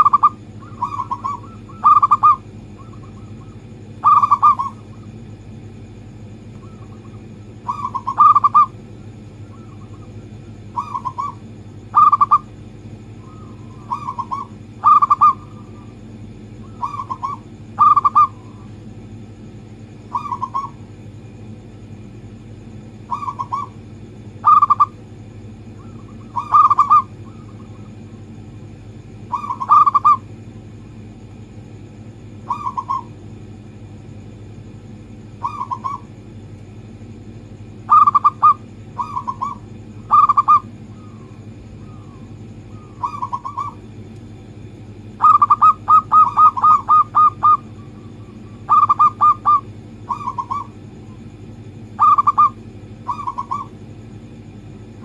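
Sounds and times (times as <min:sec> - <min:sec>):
dove cooing: 0:00.0 - 0:05.2, 0:06.6 - 0:12.5, 0:13.1 - 0:16.0, 0:16.6 - 0:18.7, 0:20.0 - 0:20.9, 0:23.0 - 0:25.0, 0:25.7 - 0:28.1, 0:29.2 - 0:30.3, 0:32.4 - 0:33.2, 0:35.3 - 0:36.2, 0:37.8 - 0:43.9, 0:45.2 - 0:50.9, 0:51.9 - 0:53.8
steady low hum: 0:00.0 - 0:55.0.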